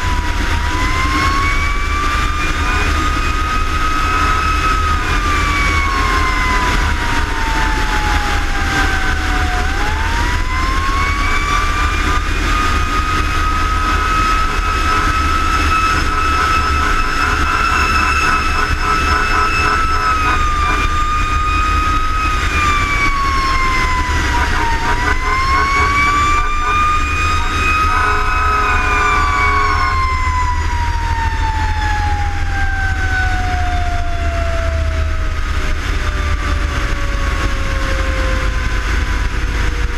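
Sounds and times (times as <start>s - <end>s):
fire engine siren wailing: 0.0s - 39.9s
truck engine rumble: 0.0s - 39.9s
short steady tone: 12.9s - 21.4s.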